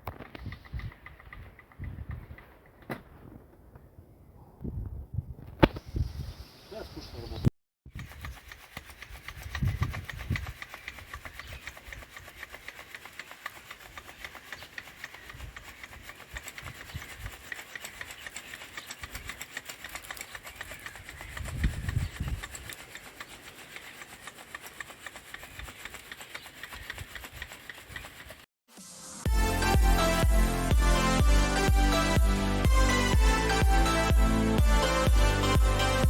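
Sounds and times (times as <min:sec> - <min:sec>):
sand sifted through mesh sieve: 0:07.9 - 0:32.2
dull low thumps: 0:29.3 - 0:36.0.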